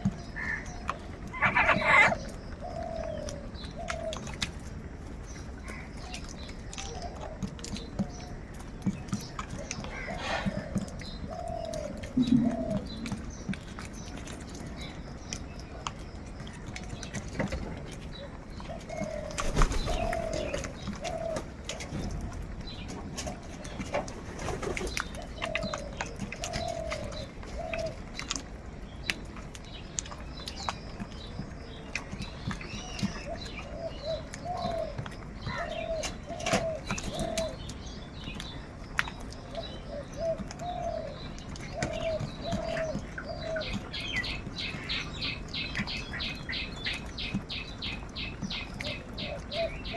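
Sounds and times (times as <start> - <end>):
bird chirps: 10.1 - 14.2.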